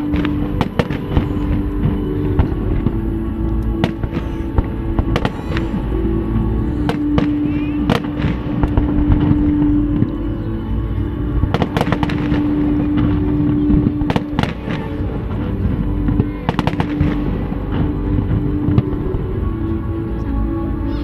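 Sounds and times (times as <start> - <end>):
fireworks bursting in sharp bangs: 0.0 - 3.0, 3.7 - 5.9, 6.7 - 9.8, 11.5 - 19.1
fireworks crackling: 0.0 - 10.2, 11.2 - 19.6
music: 0.0 - 21.0
steady low rumble: 0.0 - 21.0.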